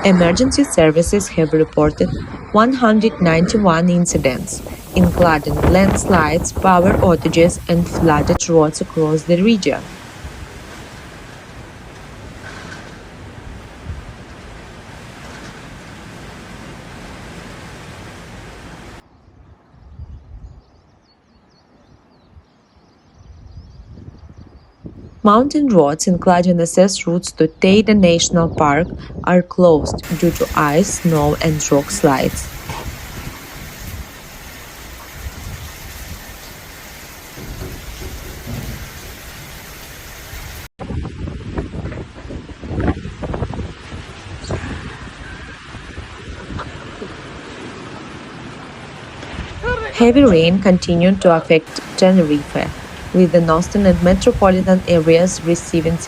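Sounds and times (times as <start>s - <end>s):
storm wind and water rushing: 0.0s - 19.1s, 27.7s - 56.0s
low rumbling gusts: 0.0s - 20.9s, 23.2s - 56.0s
heavy rain hissing: 4.1s - 19.0s, 30.0s - 40.7s, 51.7s - 56.0s.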